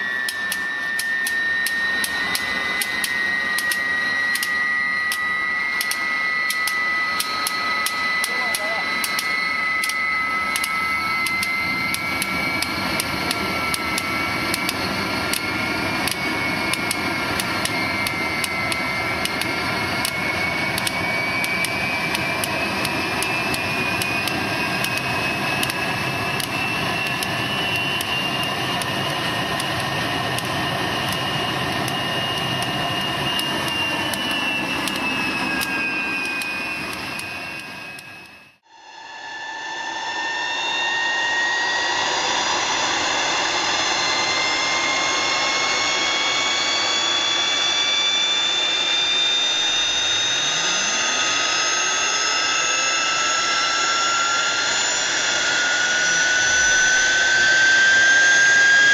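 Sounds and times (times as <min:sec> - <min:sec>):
jet engine roaring and whining: 0:00.0 - 0:58.9
sharp clicks: 0:00.2 - 0:38.4.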